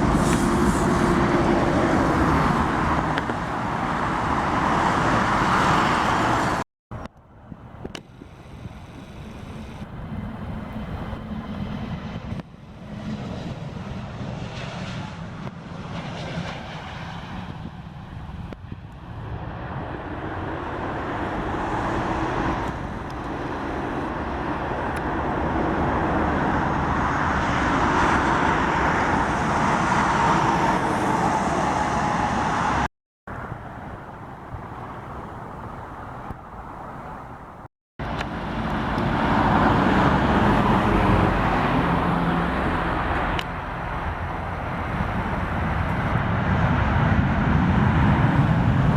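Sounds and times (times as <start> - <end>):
jet engines roaring: 0.0 - 6.6, 7.5 - 48.9
faint jet whine: 7.5 - 39.8.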